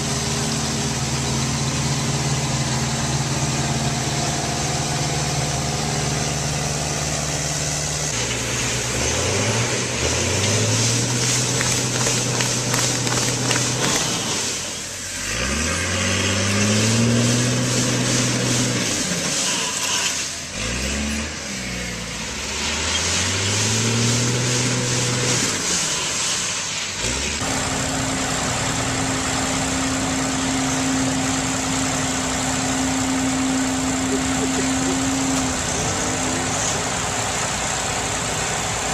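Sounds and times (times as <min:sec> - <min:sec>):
engine running steadily: 0:00.0 - 0:15.4, 0:24.8 - 0:38.9
heavy machine engine revving: 0:00.0 - 0:38.9.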